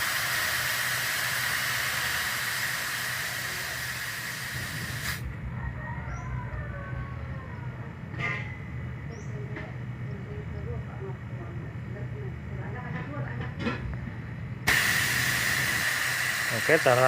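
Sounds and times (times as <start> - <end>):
gas hissing from a line: 0.0 - 5.3, 14.6 - 17.0.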